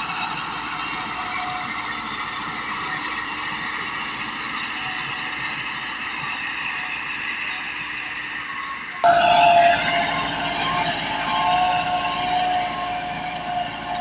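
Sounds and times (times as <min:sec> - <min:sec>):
tractor diesel engine running: 0:09.0 - 0:14.0.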